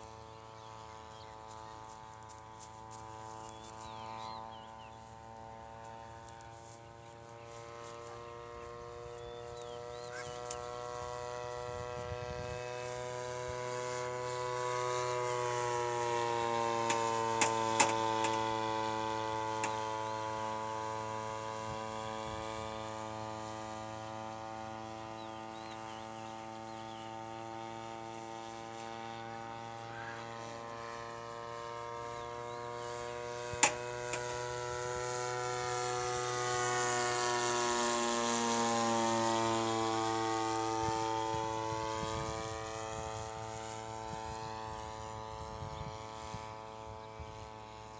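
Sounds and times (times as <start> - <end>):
model airplane engine droning: 0.0 - 47.9
sharp clicks: 16.9 - 18.6, 33.5 - 34.4.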